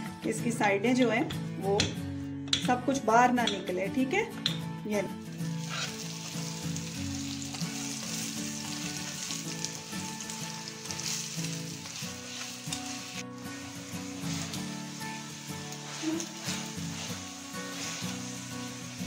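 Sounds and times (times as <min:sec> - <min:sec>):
flatbread sizzling on a griddle: 0:05.3 - 0:19.0.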